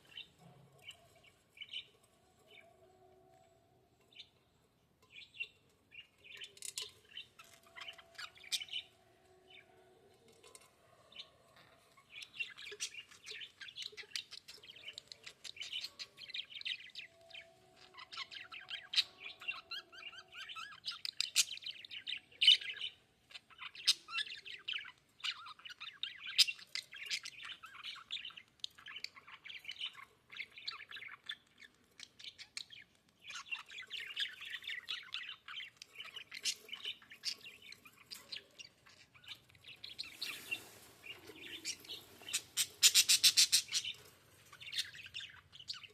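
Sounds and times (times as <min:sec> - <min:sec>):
budgerigars chirping and chattering: 0:11.6 - 0:45.9.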